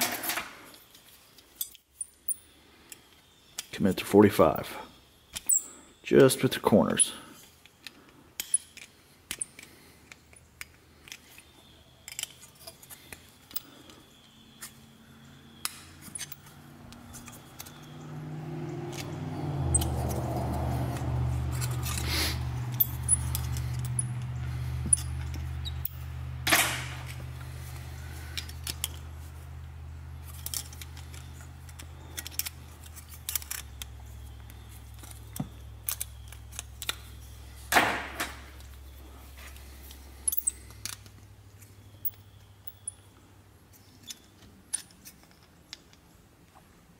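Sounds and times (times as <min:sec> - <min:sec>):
pliers clicking on metal: 0:30.3 - 0:37.2.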